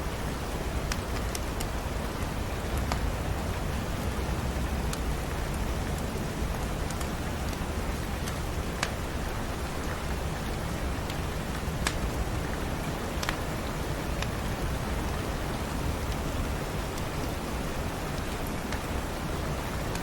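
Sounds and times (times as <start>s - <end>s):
steady rain: 0.0s - 20.0s
wood fire popping: 0.8s - 15.2s.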